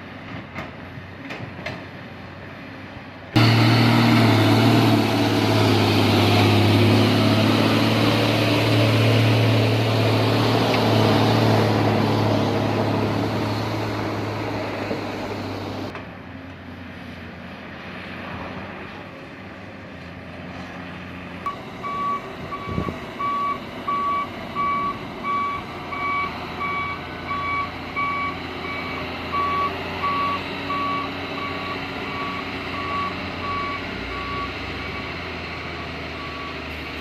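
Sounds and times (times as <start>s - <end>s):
diesel engine drone: 0.0s - 37.0s
reversing beeper: 21.5s - 35.2s, 36.1s - 36.9s.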